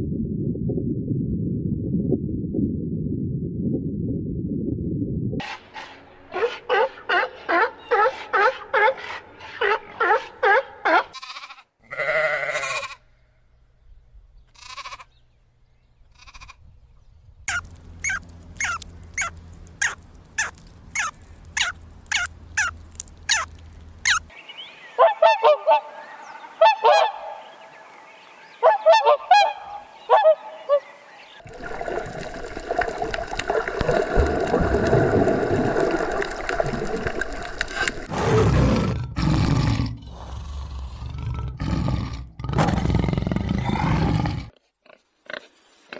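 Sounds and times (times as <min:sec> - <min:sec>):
geese honking: 0:05.4 - 0:13.3, 0:14.6 - 0:15.2, 0:17.5 - 0:31.3
rough animal sound: 0:05.4 - 0:24.3, 0:37.6 - 0:45.9.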